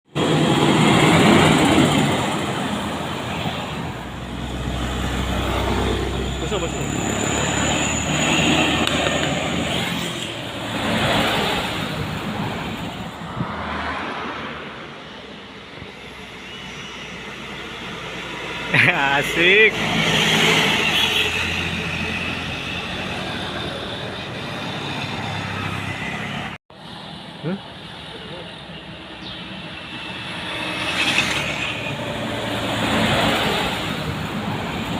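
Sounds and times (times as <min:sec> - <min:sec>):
road and traffic noise: 0:00.0 - 0:34.9
heavy vehicle engine droning: 0:00.1 - 0:12.4.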